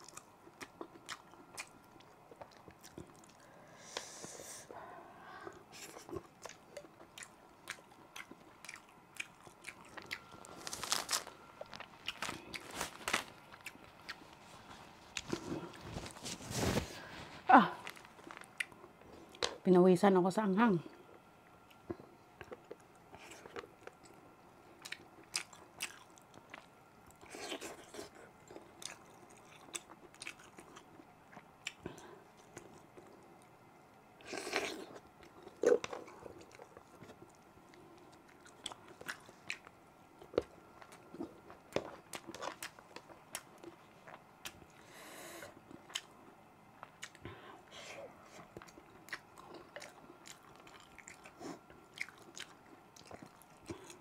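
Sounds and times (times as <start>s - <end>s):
wet chewing smacks: 48.4s - 54.0s.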